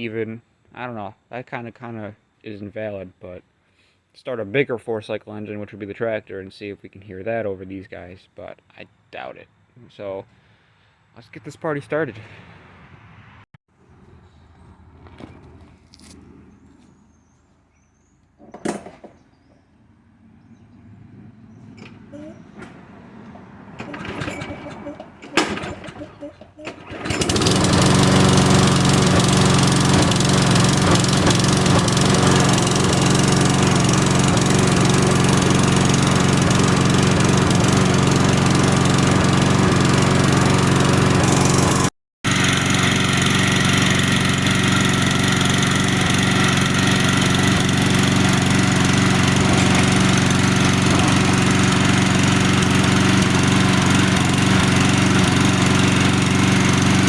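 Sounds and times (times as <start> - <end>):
lawn mower engines running: 18.4 - 57.0.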